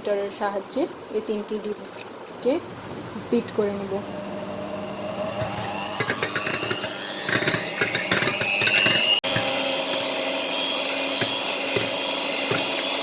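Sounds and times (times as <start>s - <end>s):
electric hand mixer whine: 2.6s - 13.0s.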